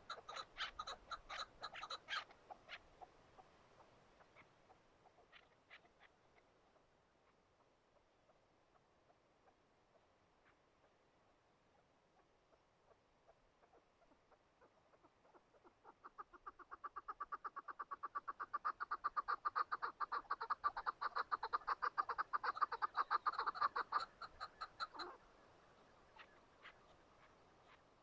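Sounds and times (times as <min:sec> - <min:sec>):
partridge calling chuk notes: 0:00.0 - 0:03.5, 0:13.6 - 0:25.2.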